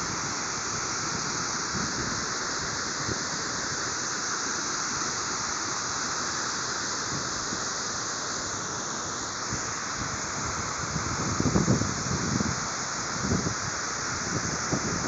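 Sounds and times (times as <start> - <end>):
waterfall rushing: 0.0 - 15.0
wind buffeting microphone: 10.8 - 12.6.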